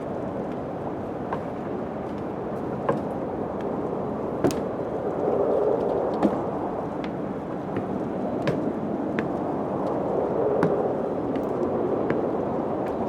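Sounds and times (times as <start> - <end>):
low wind blowing: 0.0 - 13.0
sharp knocks: 1.3 - 3.2, 4.4 - 4.8, 7.8 - 9.4.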